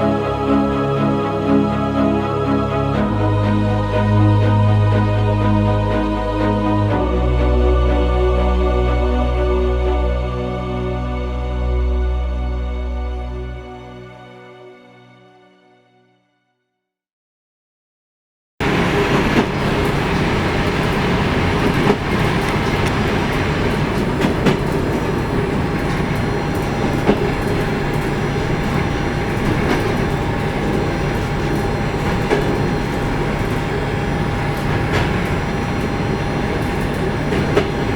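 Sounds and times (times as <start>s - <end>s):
train rumbling on track: 18.6s - 37.9s
wheels clicking over rail joints: 18.6s - 37.9s.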